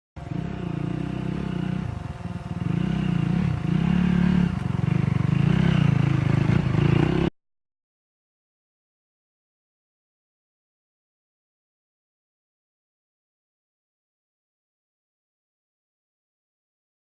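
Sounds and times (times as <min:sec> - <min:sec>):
motorcycle engine revving: 0:00.2 - 0:07.4.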